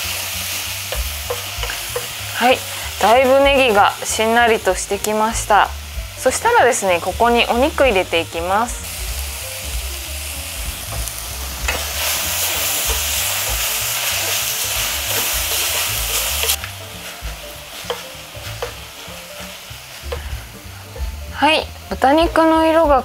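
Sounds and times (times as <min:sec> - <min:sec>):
meat sizzling in a pot: 0:00.0 - 0:23.0
spatula knocking on pot: 0:00.9 - 0:02.2, 0:17.3 - 0:18.9.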